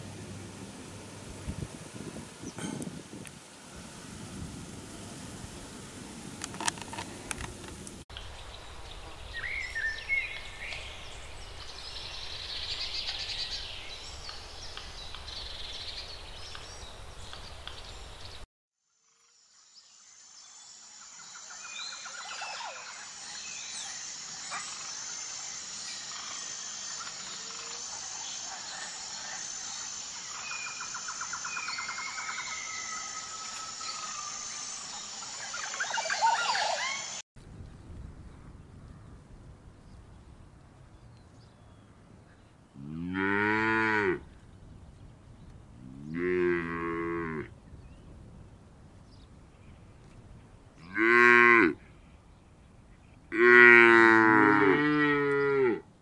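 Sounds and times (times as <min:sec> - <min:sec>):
steady high-pitched hiss: 0:00.0 - 0:42.3.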